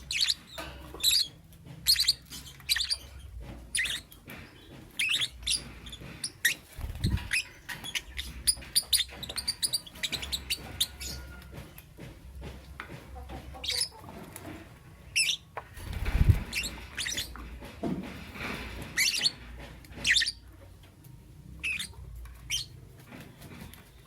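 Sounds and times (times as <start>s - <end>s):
bird chirping: 0.0s - 11.3s, 20.0s - 20.5s, 21.6s - 22.8s.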